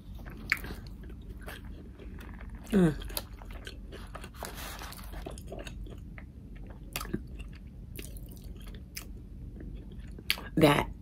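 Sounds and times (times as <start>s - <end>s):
close-miked chewing: 0.0s - 10.6s.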